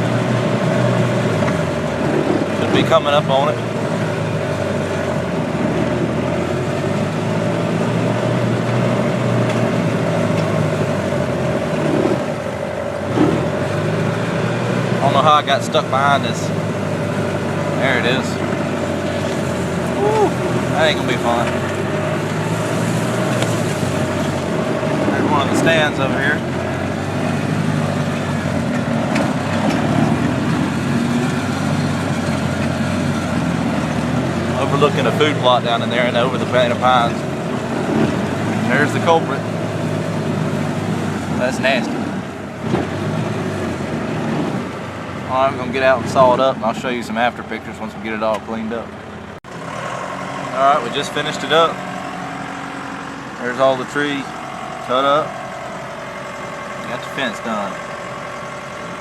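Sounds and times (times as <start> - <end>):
vehicle engine running: 0.0 - 59.0
steady whine: 17.7 - 40.6.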